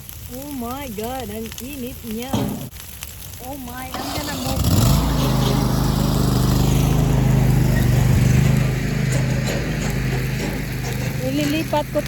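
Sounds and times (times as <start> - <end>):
faint crackles: 0.0 - 12.0
low mechanical hum: 5.0 - 12.0.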